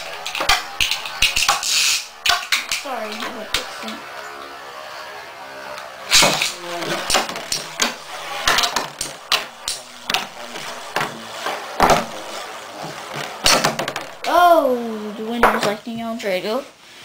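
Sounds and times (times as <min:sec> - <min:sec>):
spinning tops clashing: 0:00.0 - 0:04.5.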